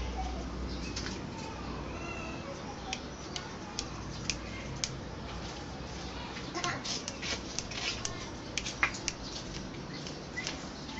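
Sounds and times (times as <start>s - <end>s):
bird clicks: 2.8s - 5.0s, 6.6s - 10.7s.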